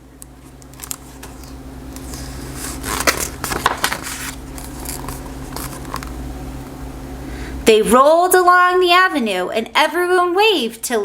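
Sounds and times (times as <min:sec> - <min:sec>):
rustling and handling noise: 0:00.2 - 0:06.3.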